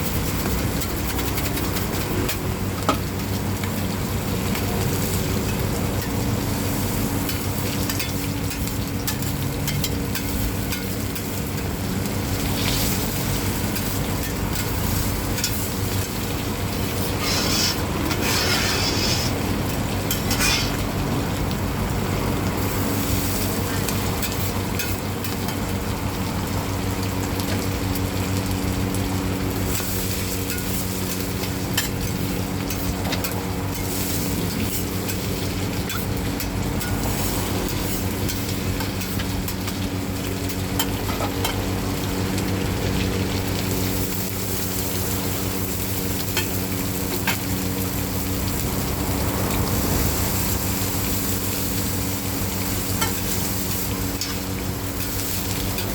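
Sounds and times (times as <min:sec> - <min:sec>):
batter sizzling in hot oil: 0:00.0 - 0:55.9
metal spatula scraping a pan: 0:17.0 - 0:19.5, 0:20.1 - 0:20.8.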